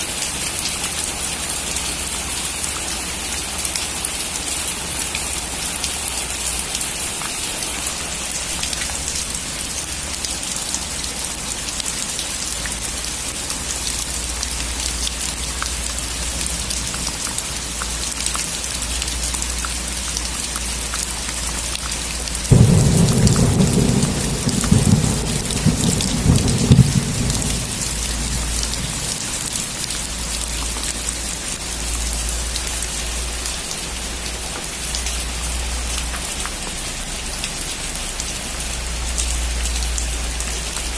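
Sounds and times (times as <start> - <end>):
steady rain falling: 0.0 - 40.9
thunder clap rumbling: 22.5 - 29.9.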